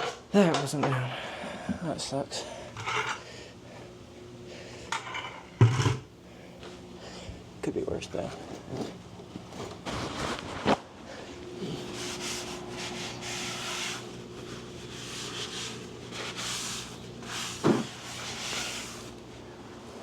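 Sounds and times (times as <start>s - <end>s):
faint steady hum: 0.0s - 20.0s
parts rubbing and scraping: 2.8s - 3.2s, 11.6s - 19.3s.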